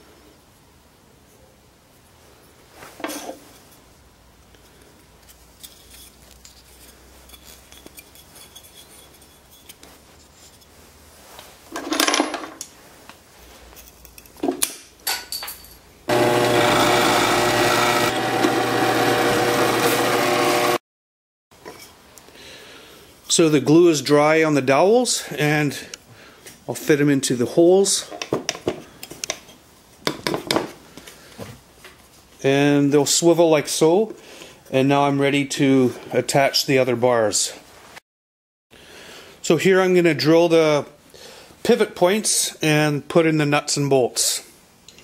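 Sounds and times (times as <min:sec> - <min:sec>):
wooden parts knocking and scraping: 0:11.7 - 0:12.7
power tool running: 0:16.1 - 0:20.8.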